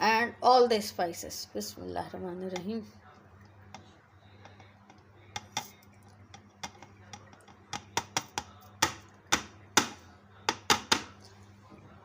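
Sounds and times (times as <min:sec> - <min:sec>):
spoons tapping blender jar: 0:05.3 - 0:05.8, 0:06.4 - 0:11.2.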